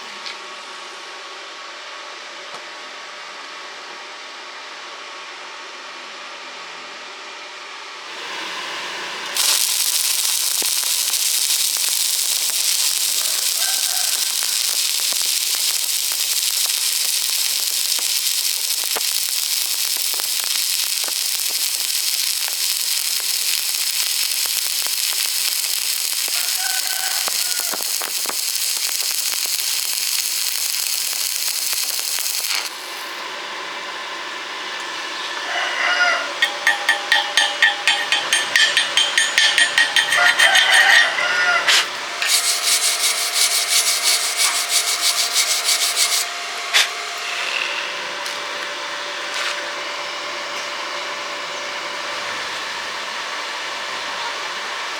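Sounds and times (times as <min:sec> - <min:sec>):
welding arc crackling and hissing: 0:08.1 - 0:33.4, 0:36.2 - 0:49.7.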